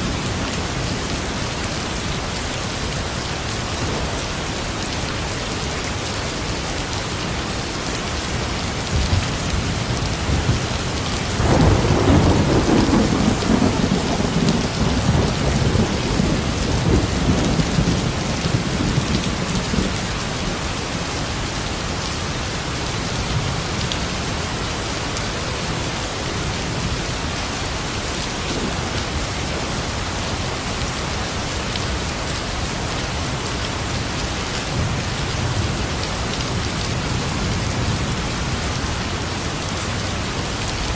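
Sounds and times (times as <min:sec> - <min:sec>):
steady rain: 0:00.0 - 0:40.9
rumble of thunder: 0:08.9 - 0:20.0.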